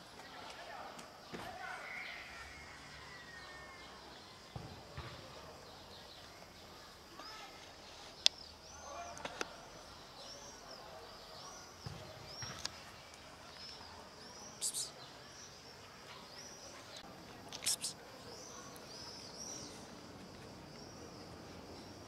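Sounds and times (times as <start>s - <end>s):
small bird chirping: 6.0s - 20.1s.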